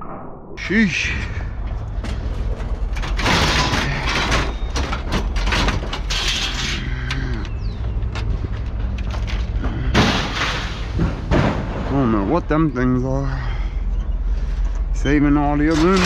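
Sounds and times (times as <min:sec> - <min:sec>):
heavy engine running: 0:00.6 - 0:12.2
scrap metal clanking and scraping: 0:01.1 - 0:12.4, 0:15.6 - 0:16.0.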